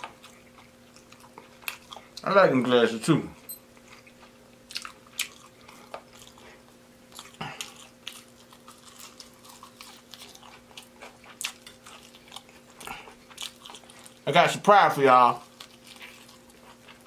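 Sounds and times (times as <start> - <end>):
faint steady hum: 0.0 - 17.0
crunching fried crust: 3.9 - 17.0.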